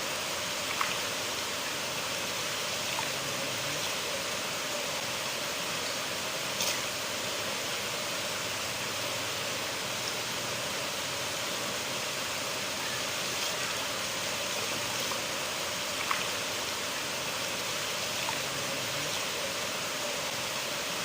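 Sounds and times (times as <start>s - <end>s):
river water rushing: 0.0s - 21.0s
faint water plinks: 0.2s - 4.3s, 12.6s - 21.0s.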